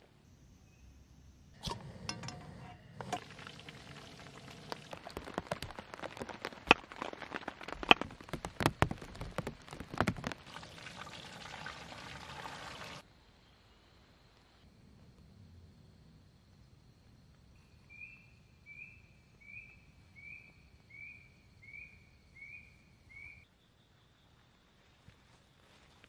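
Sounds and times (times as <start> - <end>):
rain drops knocking on surface: 3.0 - 13.0.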